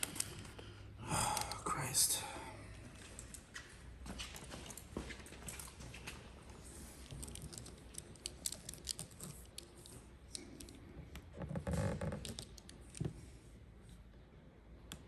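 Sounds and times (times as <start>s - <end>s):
vinyl film clicks and crinkles: 7.0s - 10.7s.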